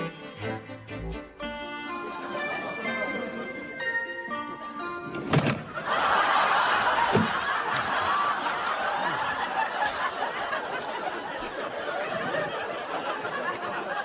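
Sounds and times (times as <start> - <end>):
studio audience laughing: 2.0 - 3.7, 5.7 - 14.0.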